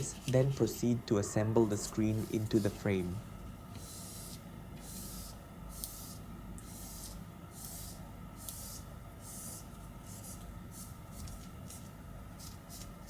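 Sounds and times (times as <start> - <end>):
cloth rubbing strokes: 0.0 - 0.8, 1.5 - 3.3.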